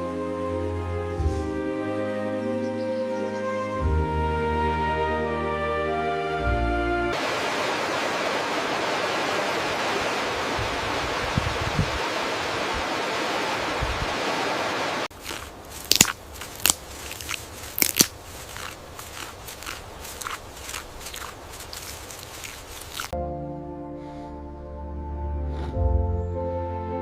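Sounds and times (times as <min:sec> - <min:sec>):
sharp crunches and crackles: 0:15.1 - 0:23.2.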